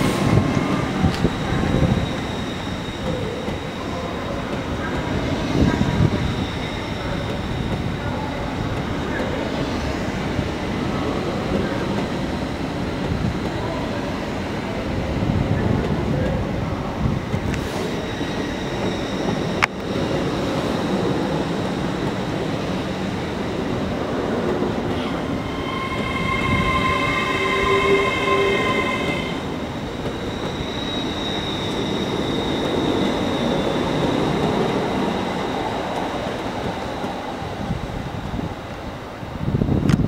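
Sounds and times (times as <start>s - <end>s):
train running on rails: 0.0s - 40.0s
metallic wheel squeal: 1.3s - 4.4s, 24.9s - 35.6s.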